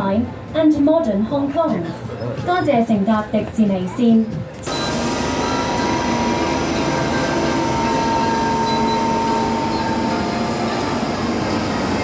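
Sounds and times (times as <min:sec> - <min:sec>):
train rumble with motor whine: 0:04.5 - 0:12.0.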